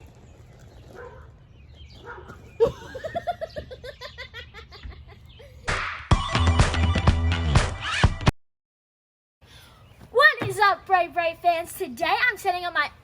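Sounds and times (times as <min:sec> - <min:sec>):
person giggling: 0:02.6 - 0:05.7.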